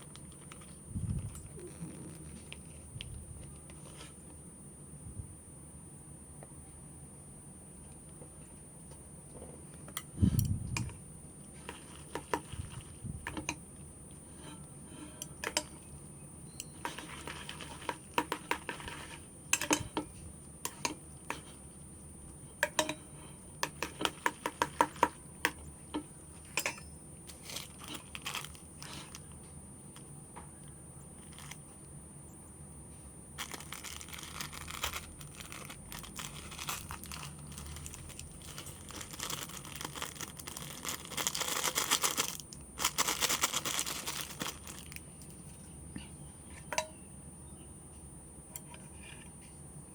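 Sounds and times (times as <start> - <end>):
plastic wrapping crinkling: 0.0 - 4.0, 16.8 - 19.2, 27.3 - 30.1, 31.2 - 31.6, 33.4 - 45.4.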